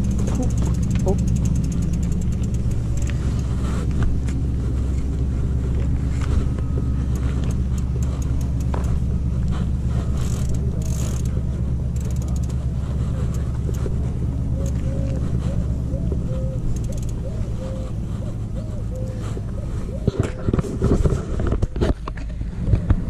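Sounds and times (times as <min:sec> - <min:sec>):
bicycle freewheel ticking: 0:00.0 - 0:03.6, 0:06.9 - 0:15.1, 0:16.4 - 0:17.7
vehicle engine idling: 0:00.0 - 0:23.0.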